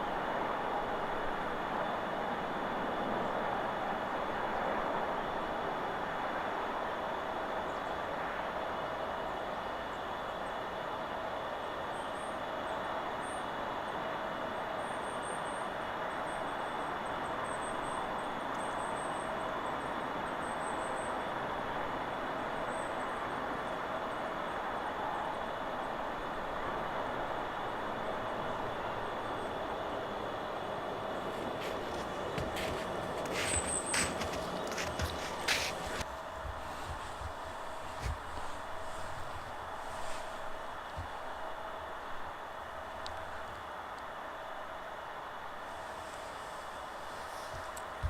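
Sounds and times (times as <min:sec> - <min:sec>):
wind rushing through trees: 0:21.5 - 0:48.0.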